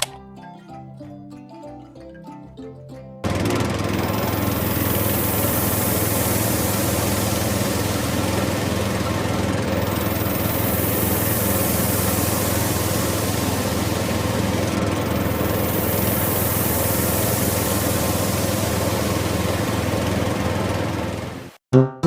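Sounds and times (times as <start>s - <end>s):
plucked music notes: 0.0s - 3.3s, 21.7s - 22.0s
small motor running: 3.2s - 21.6s.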